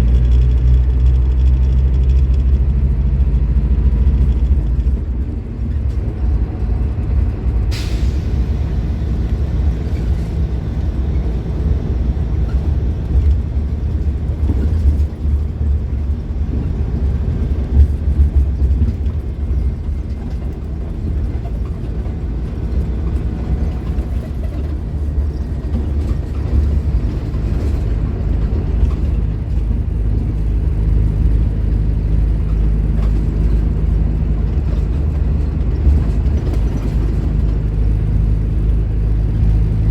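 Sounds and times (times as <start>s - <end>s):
bus diesel engine rumble: 0.0s - 39.9s
air brake hiss: 7.7s - 8.7s.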